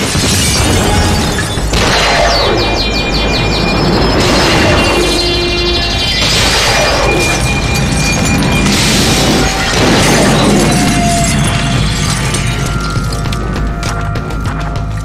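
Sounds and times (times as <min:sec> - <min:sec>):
loud crashes: 0:00.0 - 0:14.5
dramatic music: 0:00.0 - 0:15.0.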